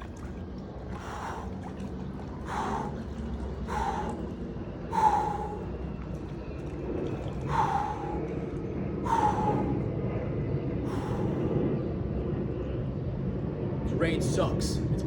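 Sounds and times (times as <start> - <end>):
low background rumble: 0.0 - 15.0
man breathing sharply: 2.5 - 5.8, 9.0 - 9.9, 10.9 - 11.6.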